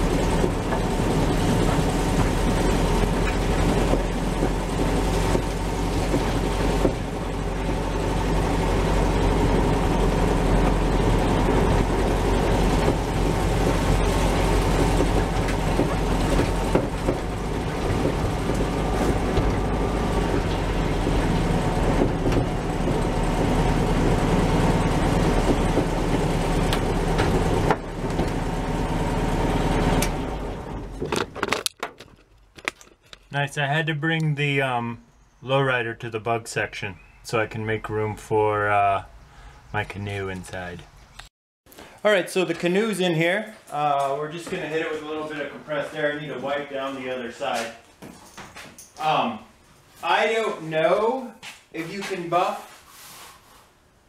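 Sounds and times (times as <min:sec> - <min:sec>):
car engine running: 0:00.0 - 0:31.7.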